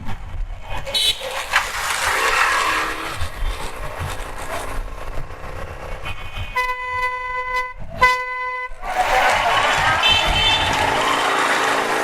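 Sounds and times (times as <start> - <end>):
low rumble of riding: 0.0 - 8.1
vehicle horn blasts: 0.9 - 1.3, 6.5 - 8.8, 10.0 - 10.7.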